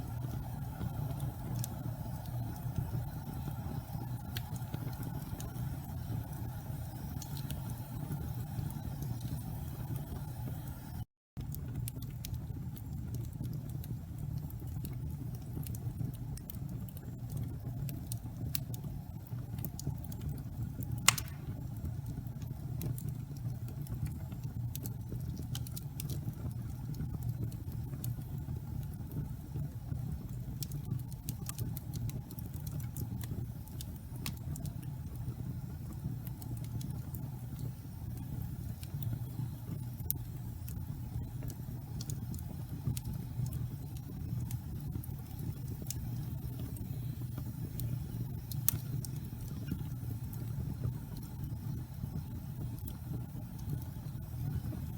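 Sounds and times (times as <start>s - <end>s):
low rumble of flames: 0.0s - 54.9s
wood fire crackling: 0.0s - 54.9s
loud fire pop: 21.0s - 21.8s.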